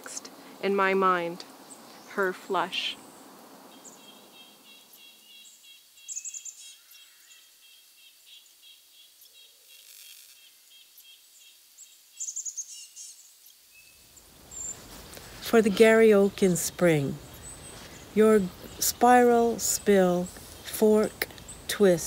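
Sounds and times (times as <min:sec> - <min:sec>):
birds chirping: 0:00.0 - 0:09.8, 0:10.4 - 0:22.0
high bird trill: 0:01.7 - 0:22.0.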